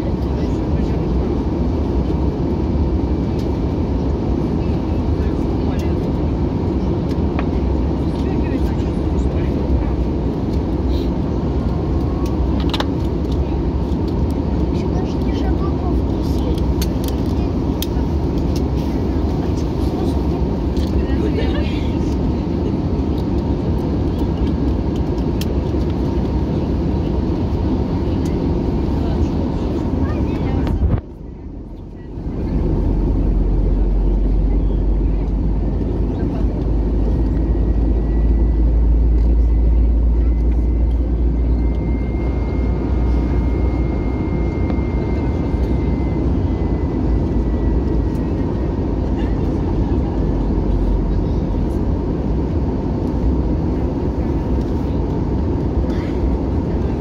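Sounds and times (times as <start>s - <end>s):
airliner cabin rumble: 0.0s - 57.0s
high whine: 27.2s - 54.6s.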